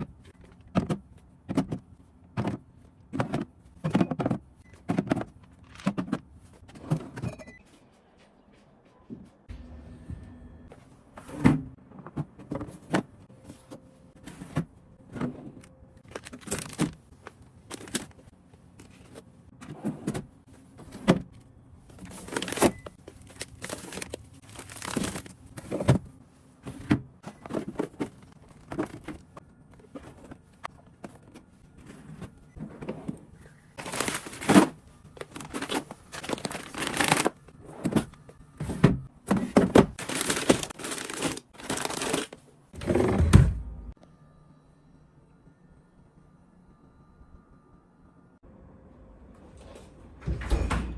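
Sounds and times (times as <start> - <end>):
plastic packaging crinkling: 22.1 - 25.4, 33.8 - 37.4, 40.0 - 42.4.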